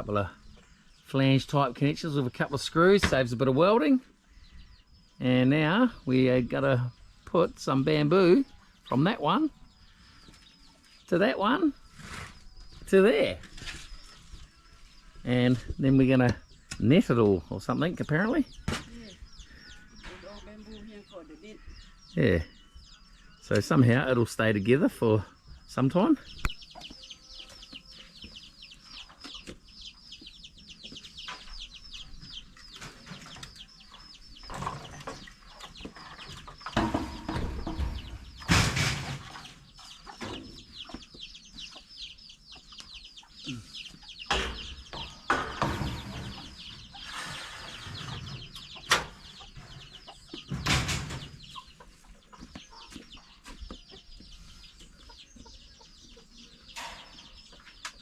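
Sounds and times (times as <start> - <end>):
chickens clucking: 0.0 - 58.0
rustling knocking noises: 34.4 - 41.2.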